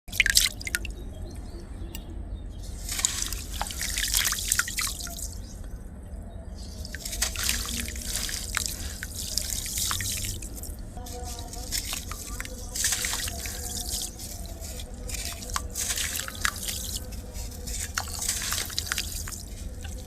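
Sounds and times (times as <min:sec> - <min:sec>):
steady low hum: 0:00.1 - 0:20.0
sand crumbling into water: 0:02.8 - 0:05.4, 0:06.8 - 0:20.0.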